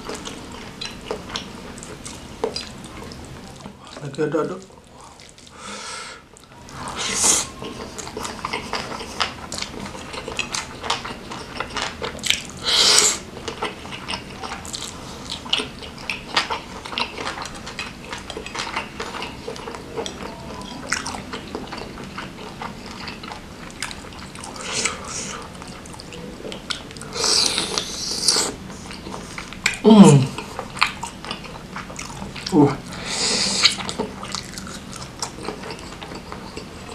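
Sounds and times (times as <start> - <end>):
wet chewing and mouth smacking: 7.2 - 32.6, 33.4 - 36.9.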